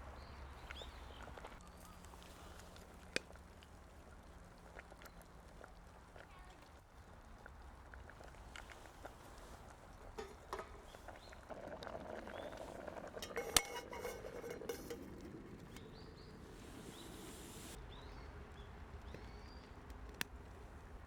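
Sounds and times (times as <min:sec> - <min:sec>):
metal cookware clinking and scraping: 0:10.1 - 0:11.4, 0:12.2 - 0:15.8.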